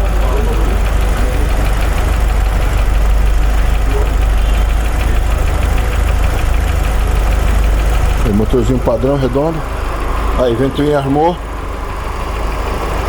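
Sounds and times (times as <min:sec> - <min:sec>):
car engine idling: 0:00.0 - 0:13.0
fast even ticking: 0:00.0 - 0:13.0.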